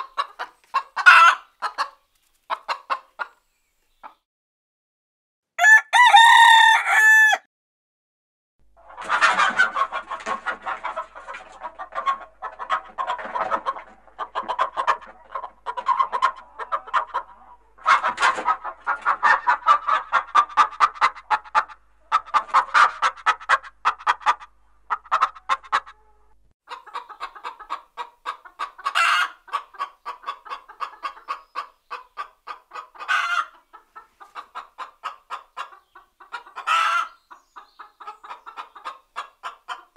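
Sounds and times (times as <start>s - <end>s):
hens clucking: 0.0s - 4.2s, 8.8s - 39.9s
rooster crowing: 5.6s - 7.5s.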